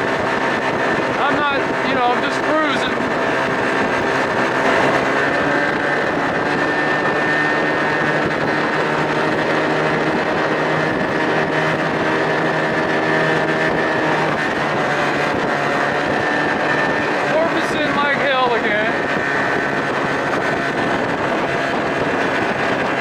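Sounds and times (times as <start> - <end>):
water rushing: 0.0 - 5.4
outboard motor running: 0.0 - 23.0
wind: 0.0 - 23.0.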